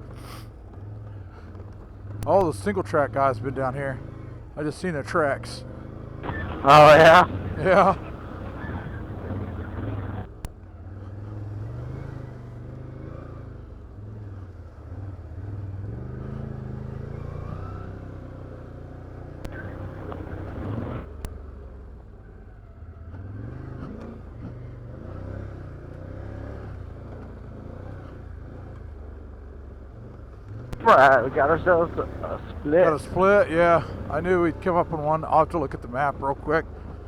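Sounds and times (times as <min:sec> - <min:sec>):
atv engine revving: 0:01.4 - 0:10.3, 0:19.5 - 0:21.2, 0:30.7 - 0:37.0.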